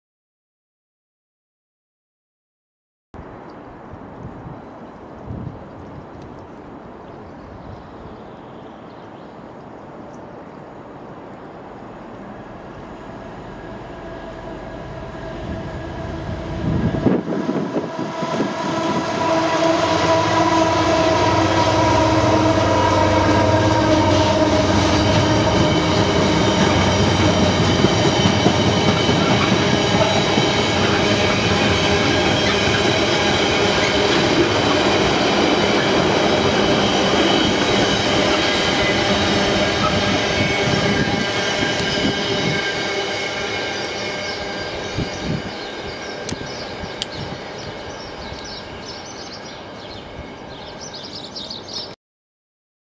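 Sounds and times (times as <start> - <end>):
diesel locomotive passing: 9.3 - 52.0
freight wagons rolling past: 18.2 - 51.9
ringing tones from wheels on rails: 24.7 - 51.9.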